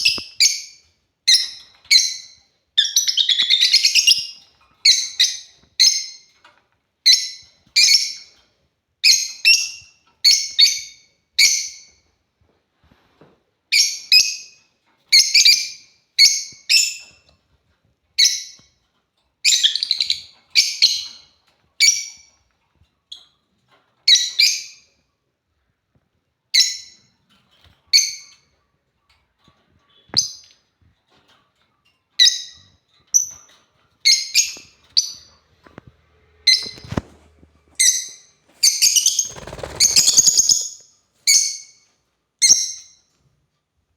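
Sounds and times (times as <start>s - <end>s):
lovebirds chirping: 37.8s - 41.7s.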